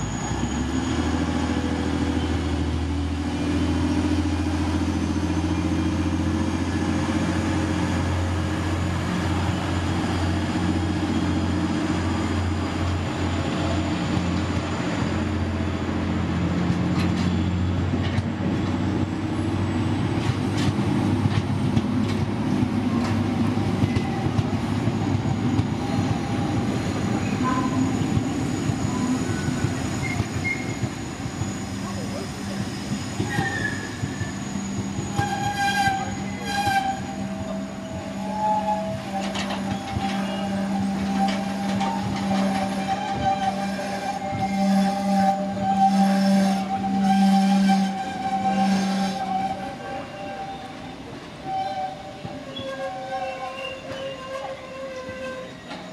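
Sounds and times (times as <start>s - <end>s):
train wheels rumbling on rail: 0.0s - 55.9s
faint wheel squeals: 25.0s - 44.7s, 51.4s - 55.9s.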